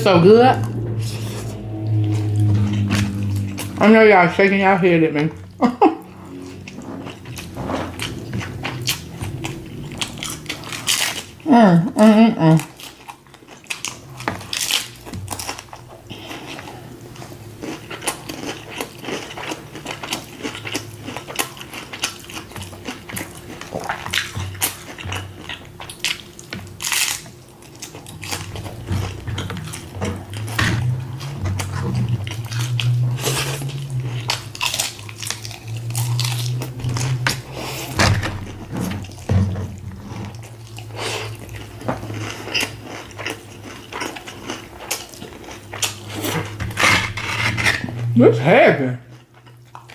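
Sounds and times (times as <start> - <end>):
background music: 0.0 - 5.6
chewing and crunching food: 5.2 - 48.1, 48.8 - 49.9.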